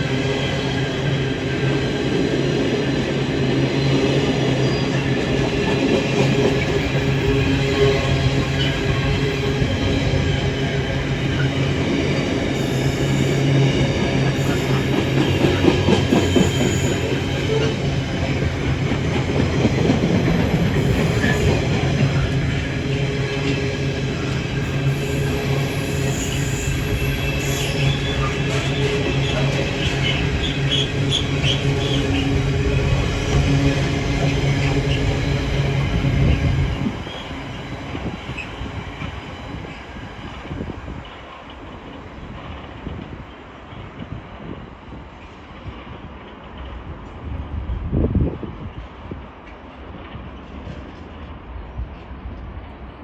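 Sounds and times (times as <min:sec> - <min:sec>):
freight train wheels on rails: 0:00.0 - 0:53.0
train wheels knocking on rails: 0:11.3 - 0:26.2.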